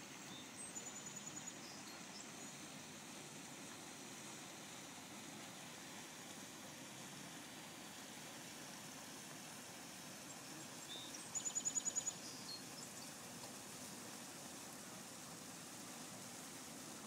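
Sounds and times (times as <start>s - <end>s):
outdoor hiss: 0.0s - 17.0s
bird chirp: 10.8s - 13.1s.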